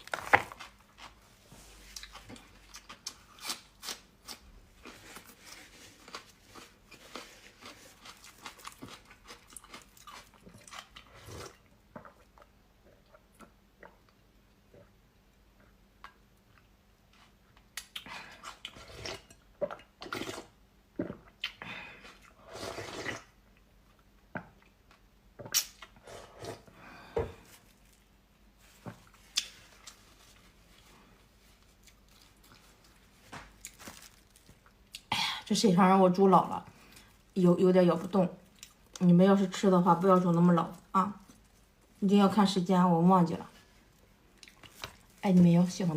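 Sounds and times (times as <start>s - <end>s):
wet chewing and mouth smacks: 6.0s - 14.2s, 23.1s - 26.0s, 44.3s - 45.2s.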